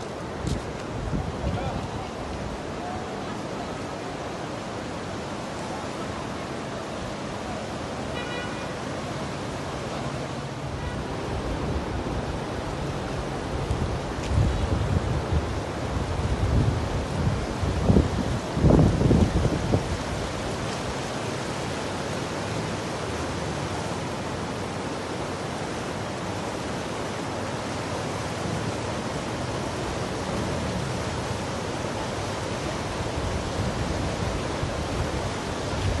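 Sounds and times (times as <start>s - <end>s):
wind buffeting microphone: 0.0s - 2.8s, 11.1s - 20.7s, 32.9s - 36.0s
rushing floodwater: 0.0s - 36.0s.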